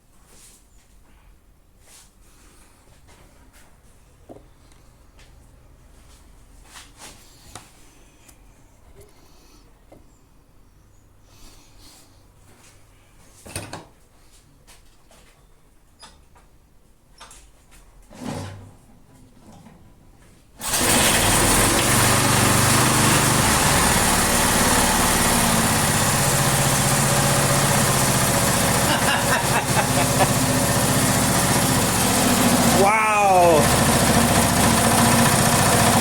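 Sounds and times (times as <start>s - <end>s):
lawn mower engine running: 20.6s - 36.0s.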